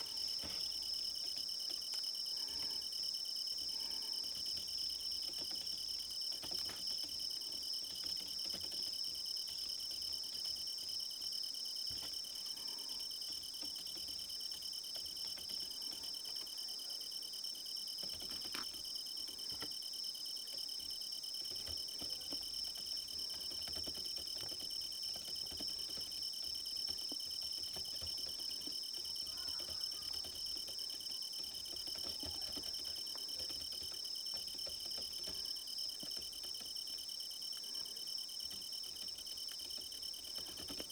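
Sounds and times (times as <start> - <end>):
crickets chirping: 0.0 - 40.9
faint clicks and taps: 3.7 - 10.6, 18.0 - 19.8, 20.4 - 40.9.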